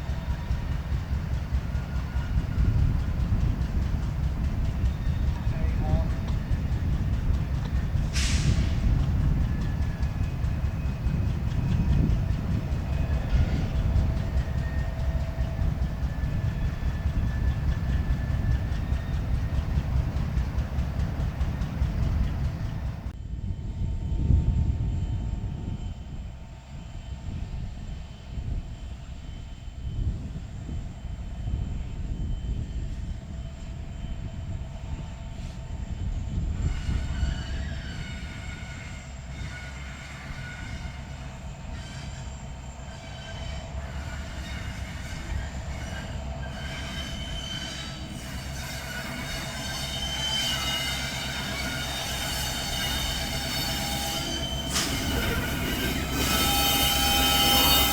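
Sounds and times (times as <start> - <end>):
freight train cars rumbling: 0.0 - 57.9
steel wheel squeal: 4.6 - 22.9, 36.2 - 57.9.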